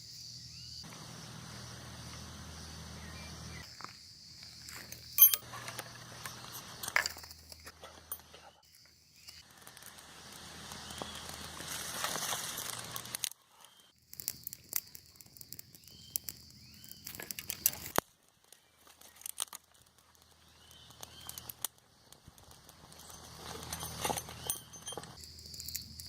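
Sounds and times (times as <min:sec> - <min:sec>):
campfire crackling with pops: 0:05.7 - 0:24.4, 0:25.0 - 0:26.0.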